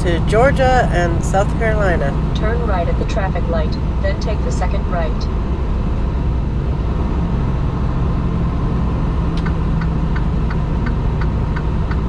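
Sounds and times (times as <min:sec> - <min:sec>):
truck engine running: 0:00.0 - 0:03.1.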